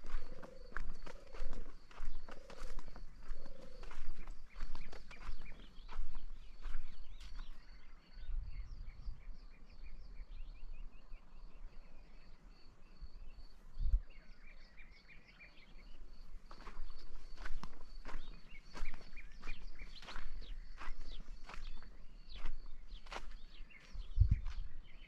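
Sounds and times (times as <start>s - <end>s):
footsteps: 0.0s - 7.6s, 16.6s - 24.7s
small birds chirping: 0.0s - 25.0s.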